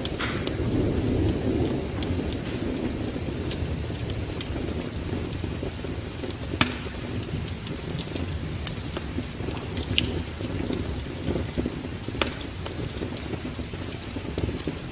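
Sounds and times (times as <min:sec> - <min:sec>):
fire popping: 0:00.0 - 0:14.9
wood fire crackling: 0:00.0 - 0:14.9
low rumble: 0:00.2 - 0:04.8.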